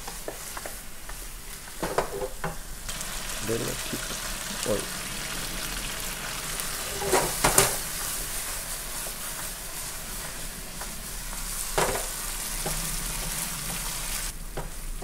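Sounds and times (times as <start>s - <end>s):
fish sizzling in sauce: 0.0s - 15.0s
wooden spatula scraping a pan: 5.2s - 15.0s.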